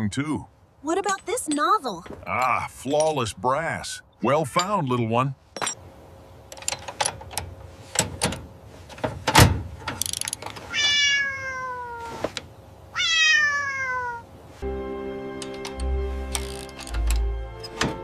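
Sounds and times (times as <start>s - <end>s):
cat meowing: 10.7s - 12.3s, 12.9s - 14.3s.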